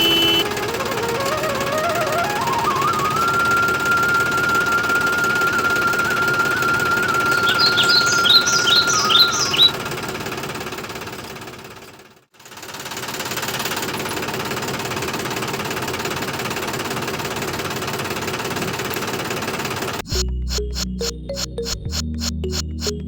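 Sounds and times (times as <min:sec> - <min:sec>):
motor rattling: 0:00.0 - 0:20.8
birds chirping: 0:04.7 - 0:09.9.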